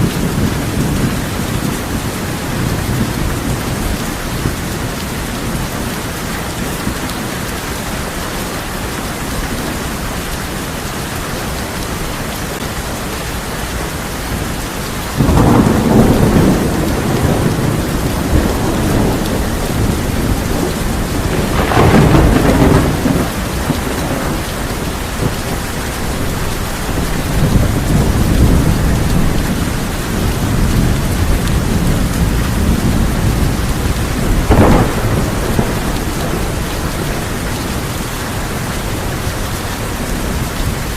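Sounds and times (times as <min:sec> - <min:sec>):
heavy rain on a tin roof: 0:00.0 - 0:40.9
thunder: 0:15.2 - 0:25.8, 0:26.9 - 0:39.3.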